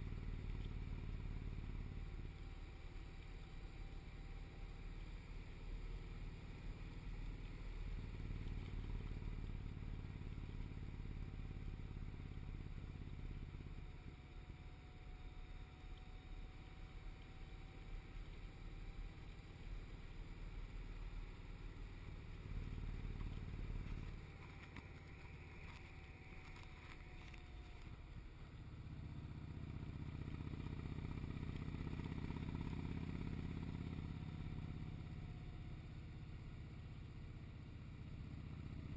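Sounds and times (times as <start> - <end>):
motorcycle engine revving: 16.2 - 38.9.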